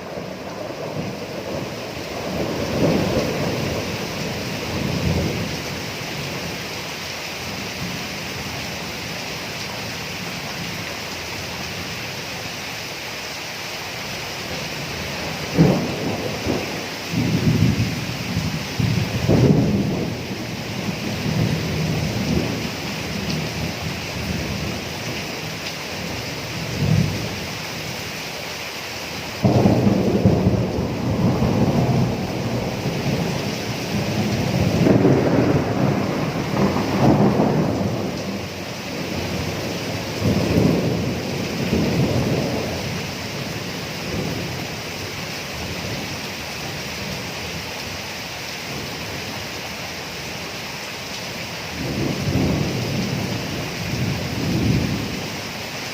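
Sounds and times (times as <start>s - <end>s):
thunder rumbling: 0.0s - 6.6s, 14.4s - 27.4s, 29.4s - 46.1s, 51.8s - 55.2s
rain falling: 0.0s - 55.9s.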